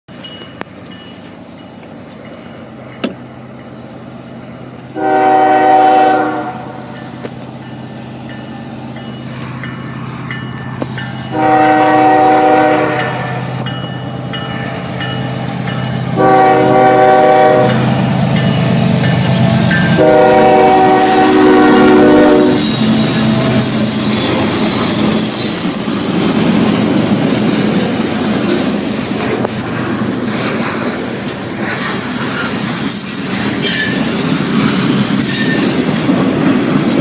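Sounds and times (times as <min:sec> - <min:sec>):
low rumble of train: 0:00.1 - 0:37.0
locomotive air horn blasts: 0:04.9 - 0:06.9, 0:11.3 - 0:13.5, 0:16.2 - 0:17.9, 0:19.9 - 0:23.8.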